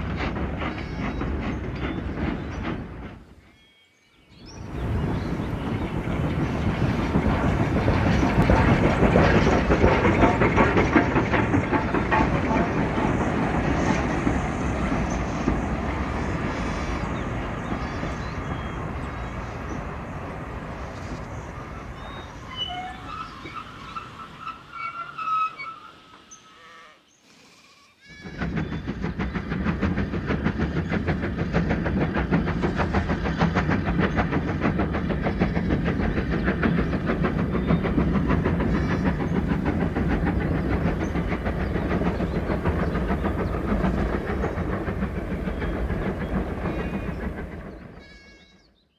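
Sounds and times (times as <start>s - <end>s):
train running: 0.0s - 26.6s, 28.0s - 48.9s.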